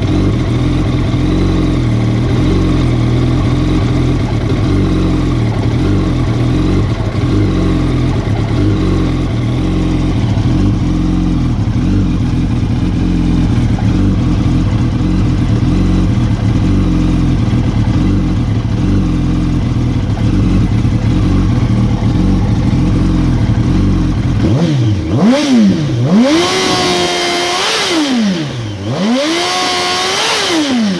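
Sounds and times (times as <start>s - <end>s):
motorcycle engine idling: 0.0s - 30.9s.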